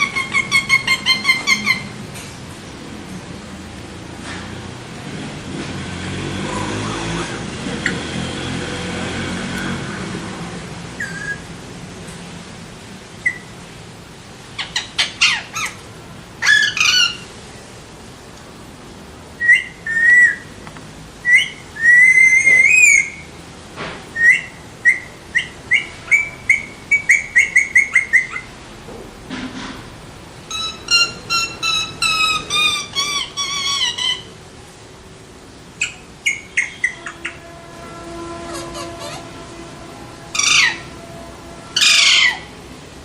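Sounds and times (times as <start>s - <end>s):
parakeet whistled calls: 0.0s - 1.9s, 11.0s - 11.4s, 13.2s - 13.5s, 16.4s - 17.2s, 19.4s - 20.4s, 21.2s - 23.3s, 24.2s - 28.5s, 30.5s - 34.3s, 35.8s - 37.7s, 38.5s - 39.5s, 40.3s - 40.9s, 41.8s - 42.5s.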